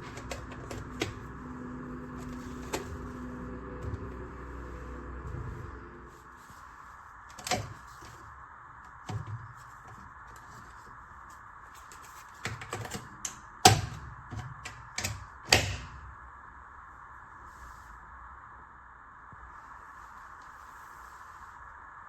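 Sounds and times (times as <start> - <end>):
sharp clicks and knocks: 11.9 - 15.9
steady hiss: 15.6 - 22.0.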